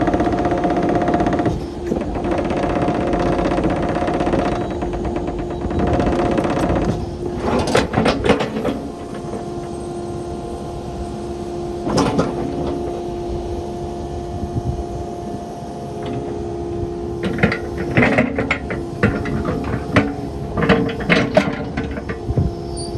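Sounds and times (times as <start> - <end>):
excavator engine and hydraulics whine: 0.0 - 22.9
metallic clanks: 17.2 - 22.9.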